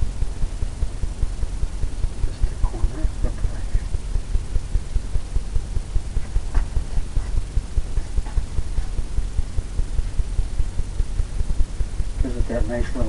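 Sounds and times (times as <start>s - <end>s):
brush thumping on canvas: 6.2s - 9.0s.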